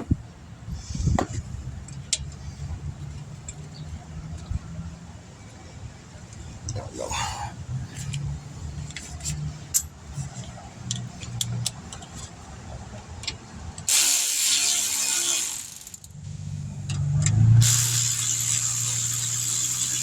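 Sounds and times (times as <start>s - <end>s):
power ratchet running: 13.9s - 16.2s, 17.6s - 20.0s.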